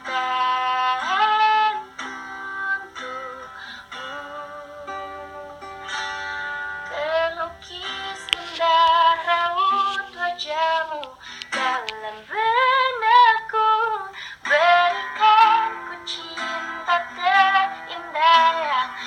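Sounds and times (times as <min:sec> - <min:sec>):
instrumental accompaniment: 0:00.0 - 0:19.0
woman singing with vibrato: 0:00.0 - 0:19.0.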